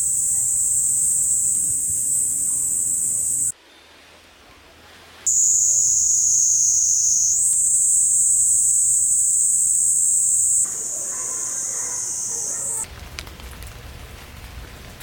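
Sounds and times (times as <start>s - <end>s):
insects shrilling: 0.0s - 3.5s, 5.3s - 12.8s
faint hiss: 0.0s - 12.9s.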